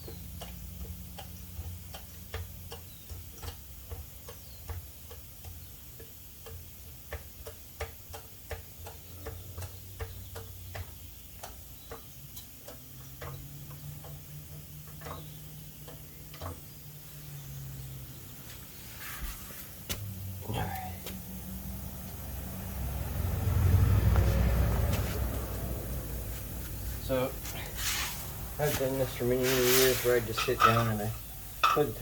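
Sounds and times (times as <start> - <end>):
low steady hum: 8.9 - 32.0.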